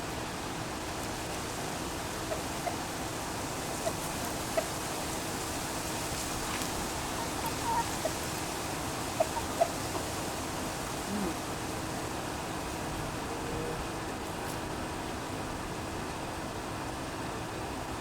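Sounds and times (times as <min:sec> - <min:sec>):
steady background hiss: 0:00.0 - 0:18.0
chickens clucking softly: 0:00.9 - 0:14.9.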